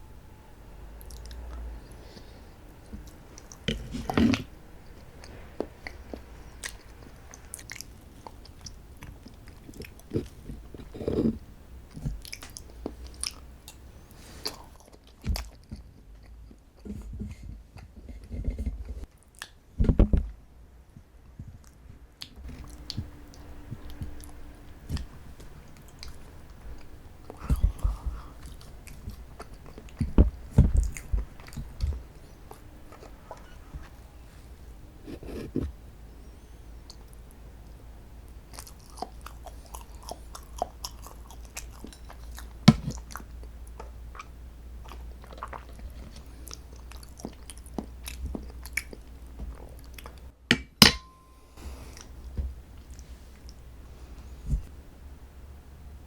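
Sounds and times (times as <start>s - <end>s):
chewing and mouth sounds: 2.9s - 16.9s, 21.6s - 34.0s, 38.4s - 50.3s.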